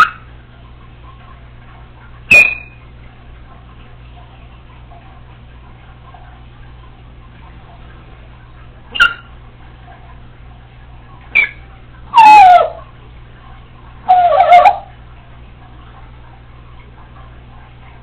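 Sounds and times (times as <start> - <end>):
parrot chirping: 2.3 - 2.8, 8.9 - 9.3, 11.3 - 12.8, 14.0 - 14.9
rough whine-like parrot call: 12.2 - 12.8, 14.1 - 14.9.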